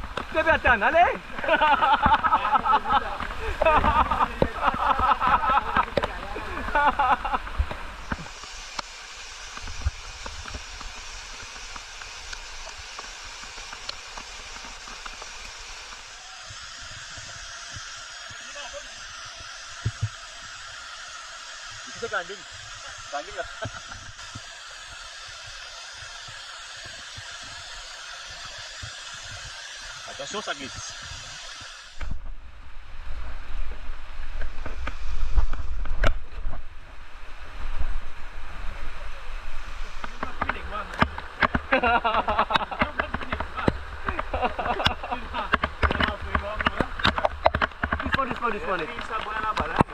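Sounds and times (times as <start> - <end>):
sliding down wet rock rumble: 0.0 - 8.5, 38.8 - 49.9
rushing water: 0.0 - 49.9
small clicks: 7.6 - 18.4
knocks and scrapes on rock: 42.7 - 49.9.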